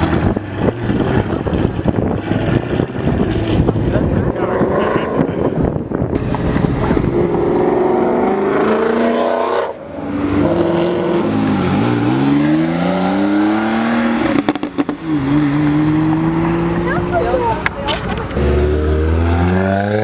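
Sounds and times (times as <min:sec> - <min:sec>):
car engine accelerating hard: 0:06.1 - 0:17.5, 0:18.3 - 0:20.0.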